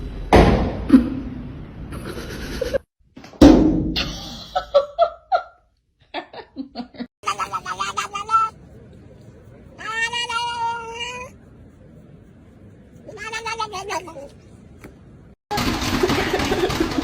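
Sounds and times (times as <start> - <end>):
person laughing: 6.4 - 8.6.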